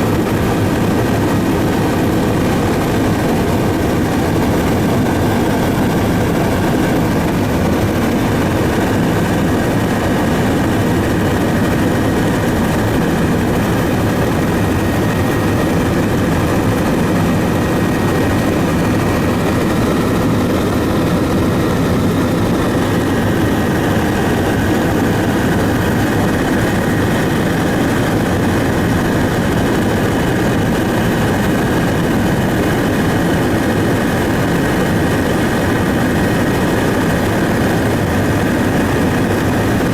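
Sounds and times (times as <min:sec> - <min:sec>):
aircraft engine drone: 0:00.0 - 0:39.9.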